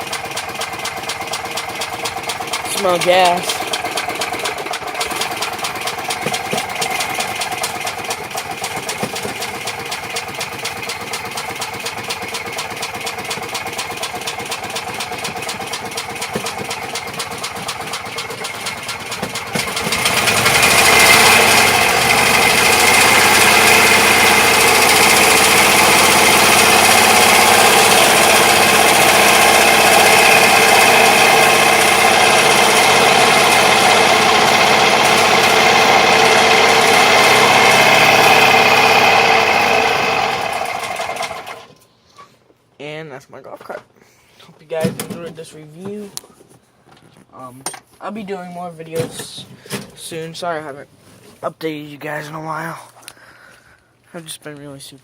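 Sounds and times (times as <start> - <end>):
golf cart engine running: 0.0 - 41.8.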